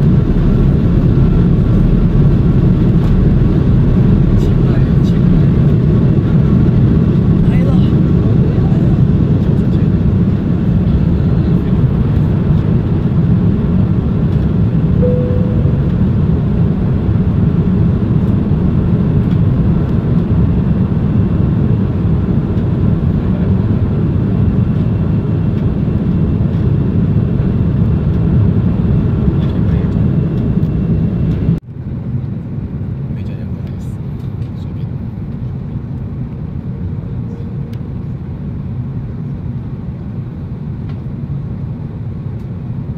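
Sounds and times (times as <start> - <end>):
quiet cabin hum: 0.0 - 18.5
jet engine cabin rumble: 0.0 - 42.9.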